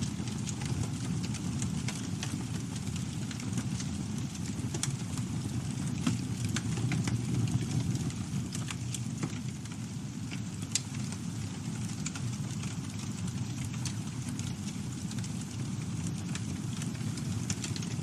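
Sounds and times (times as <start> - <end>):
burning wood crackling and popping: 0.0 - 18.0
campfire flames roaring: 0.0 - 18.0.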